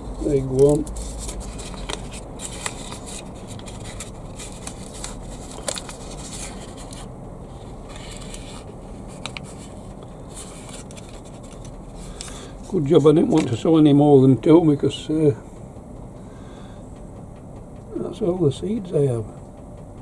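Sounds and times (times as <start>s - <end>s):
low steady rumble: 0.0s - 20.0s
hands scraping while sowing seeds: 0.2s - 13.7s.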